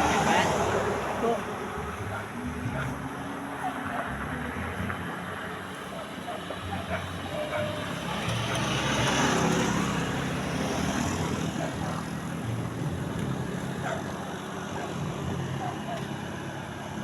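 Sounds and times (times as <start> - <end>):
motor vehicle passing by: 0.0 - 17.0.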